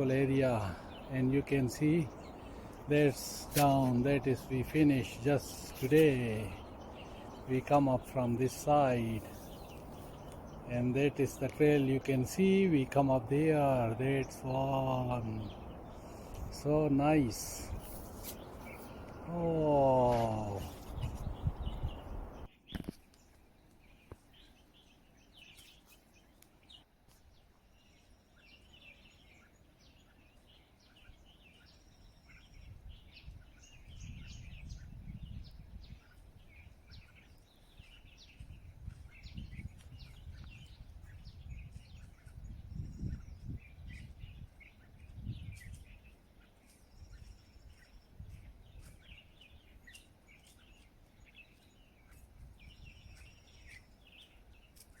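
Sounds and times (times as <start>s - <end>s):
birds chirping and calling: 0.0s - 55.0s
wind gusting on microphone: 0.6s - 22.5s, 32.5s - 46.2s, 47.0s - 49.7s.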